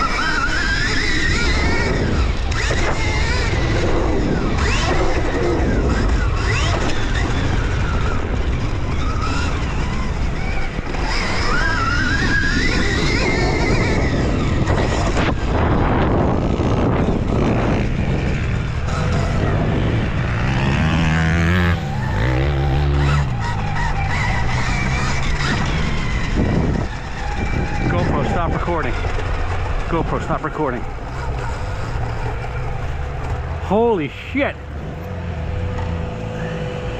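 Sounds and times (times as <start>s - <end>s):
wind noise on helmet: 0.0s - 30.2s
dirt bike motor: 0.0s - 36.9s.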